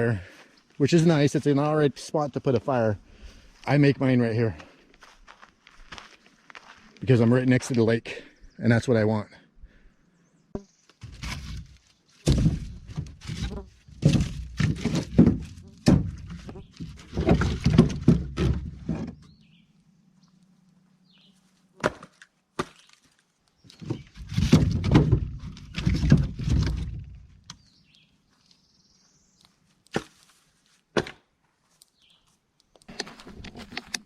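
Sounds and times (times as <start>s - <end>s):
rustling and crunching of wood: 0.1s - 7.9s, 10.9s - 28.6s, 29.3s - 34.0s
sticks knocking and cracking: 10.9s - 19.2s, 21.8s - 27.6s, 29.4s - 32.0s.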